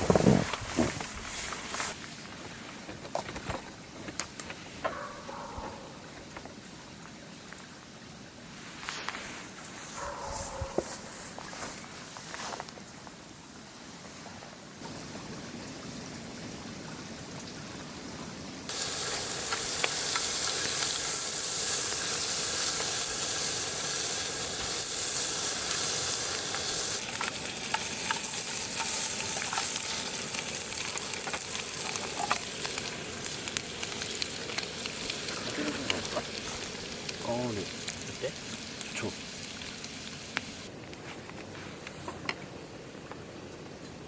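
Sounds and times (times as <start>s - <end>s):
chicken sizzling in a pan: 18.7s - 40.7s
stirring clicks and scrapes in pan: 26.4s - 36.7s.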